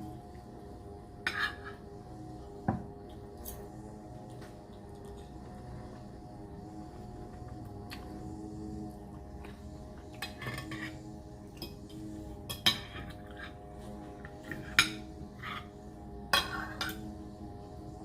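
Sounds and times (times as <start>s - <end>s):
utensils clinking on a plate: 16.3s - 17.1s.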